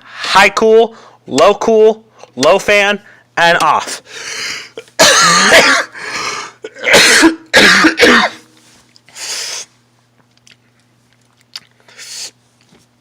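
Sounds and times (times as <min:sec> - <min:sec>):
person coughing: 0:04.6 - 0:08.5.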